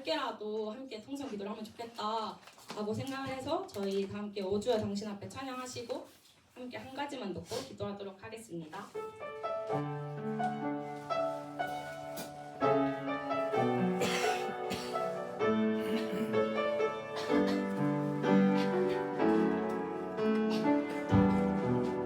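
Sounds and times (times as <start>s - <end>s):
piano playing slow chords: 9.0s - 22.0s.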